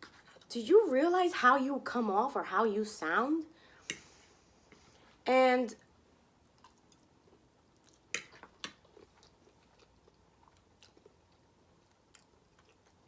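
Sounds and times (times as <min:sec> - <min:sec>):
mouth chewing food: 0:06.4 - 0:13.0.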